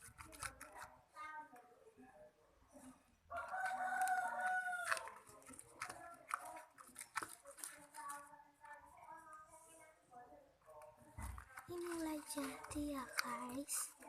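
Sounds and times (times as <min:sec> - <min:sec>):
rooster crowing: 0:03.4 - 0:05.1.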